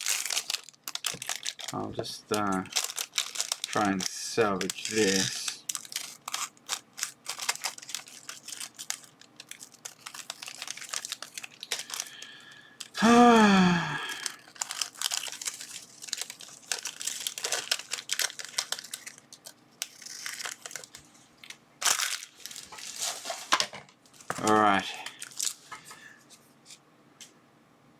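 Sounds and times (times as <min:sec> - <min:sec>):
plastic film crinkling: 0:00.0 - 0:26.4
person humming: 0:13.0 - 0:14.3.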